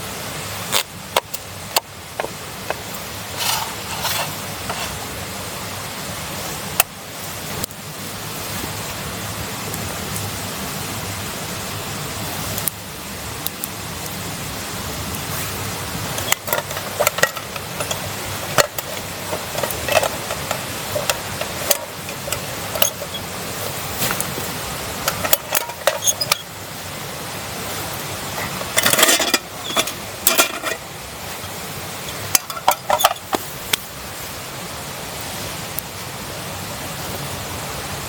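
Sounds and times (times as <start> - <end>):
steady hiss: 0.0 - 38.0
camp cookware clinking: 0.7 - 5.2, 15.9 - 33.9.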